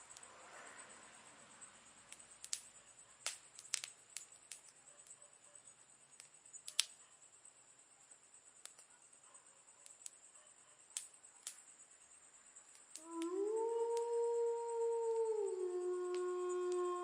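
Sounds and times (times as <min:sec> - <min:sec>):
sharp fire pops: 0:02.1 - 0:05.1, 0:06.1 - 0:07.0, 0:10.9 - 0:11.7
wood fire crackling: 0:02.1 - 0:05.2, 0:06.0 - 0:07.0, 0:08.5 - 0:09.0, 0:09.8 - 0:12.0.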